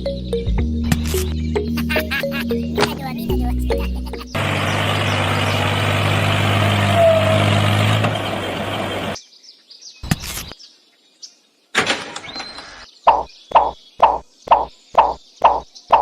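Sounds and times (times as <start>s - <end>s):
faint bird chirps: 12.2s - 16.0s.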